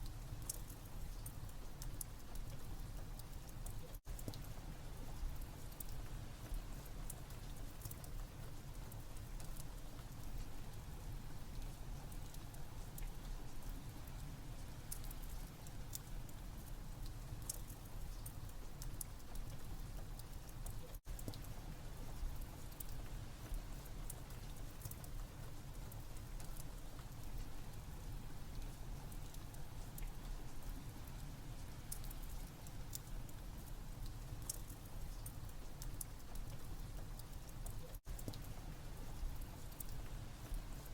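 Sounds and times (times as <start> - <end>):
rain: 0.0 - 40.9
wood fire crackling: 14.6 - 40.9.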